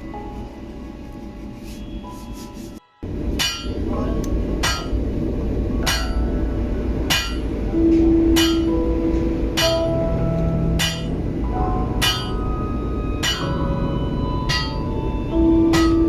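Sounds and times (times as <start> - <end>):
hammer striking metal: 3.3 - 5.0, 5.8 - 6.4, 7.0 - 12.6, 13.2 - 13.8, 14.4 - 15.0, 15.6 - 16.0.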